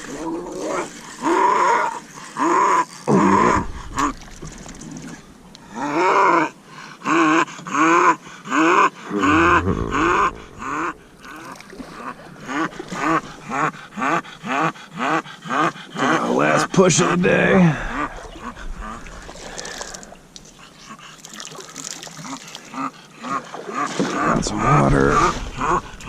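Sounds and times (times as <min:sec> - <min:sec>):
dog low rumbles: 0:09.1 - 0:11.4.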